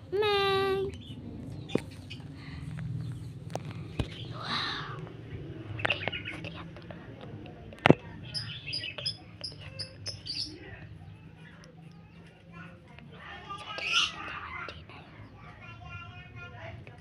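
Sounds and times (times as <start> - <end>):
low steady hum: 0.0 - 17.0
small bird chirping: 8.2 - 11.2.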